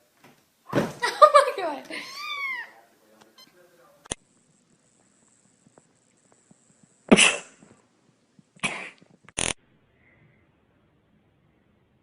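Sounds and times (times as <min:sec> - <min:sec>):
harsh cough-like bursts: 0:07.1 - 0:07.8, 0:08.6 - 0:09.1.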